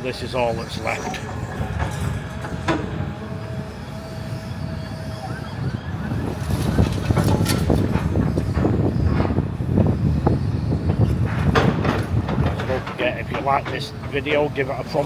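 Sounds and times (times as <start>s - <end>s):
faint steady whine: 0.0s - 11.4s
road traffic passing: 0.0s - 15.0s.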